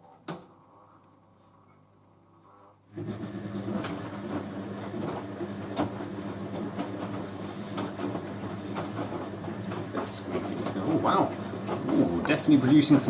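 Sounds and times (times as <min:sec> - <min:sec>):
washing machine motor humming: 0:02.9 - 0:13.0.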